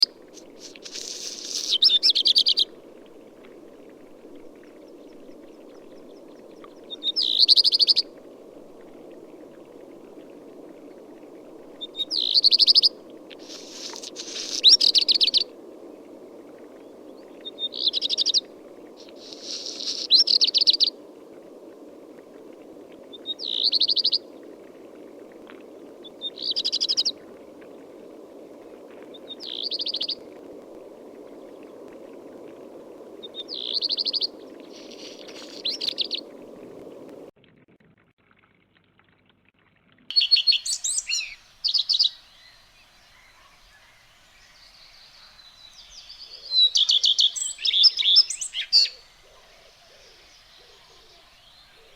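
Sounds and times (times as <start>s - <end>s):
songbird singing with trills: 6.6s - 8.0s, 11.8s - 12.9s, 17.4s - 18.4s, 23.3s - 24.2s, 33.3s - 36.3s, 40.1s - 51.9s.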